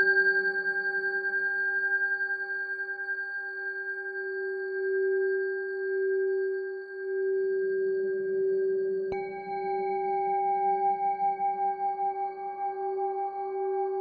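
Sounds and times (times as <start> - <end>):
singing bowl ringing: 9.1 - 14.0.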